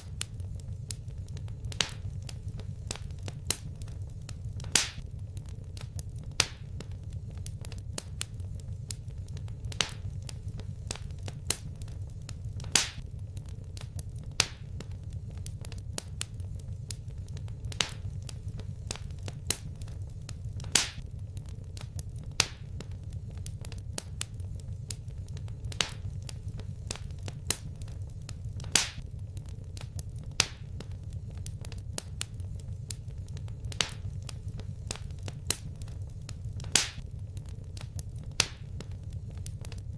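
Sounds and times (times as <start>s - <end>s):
low rumble of flames: 0.0s - 39.9s
wood fire pops and snaps: 0.0s - 39.9s.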